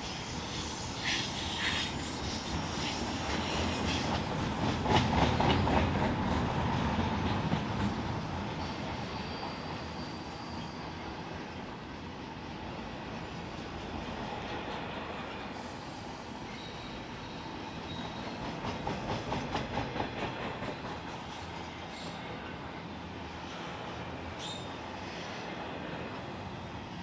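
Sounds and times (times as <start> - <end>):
faint high wheel squeal: 0.0 - 4.6, 8.4 - 13.7, 15.5 - 18.6, 21.2 - 26.0
freight train wheels clicking: 0.0 - 9.9, 17.1 - 22.2.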